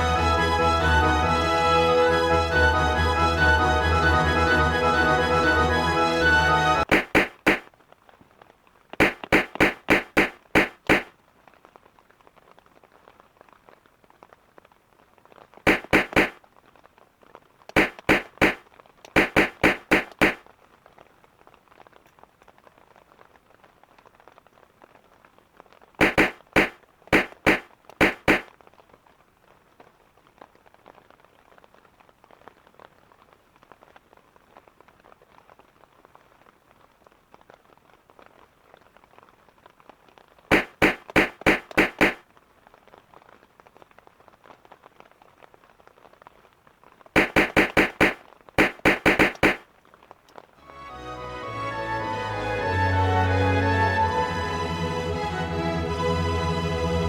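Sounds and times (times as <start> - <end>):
faint steady hiss: 6.8 - 57.0
bursts of sharp knocks: 6.9 - 7.7, 9.0 - 11.1, 15.7 - 16.4, 17.7 - 20.4, 26.0 - 28.5, 40.5 - 42.2, 47.2 - 49.6.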